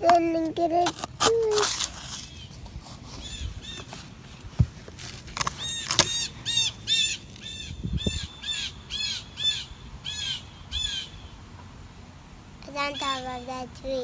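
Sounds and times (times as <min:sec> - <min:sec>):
bird calling: 0:01.3 - 0:04.4, 0:05.3 - 0:11.4
soft thumps: 0:03.7 - 0:06.3.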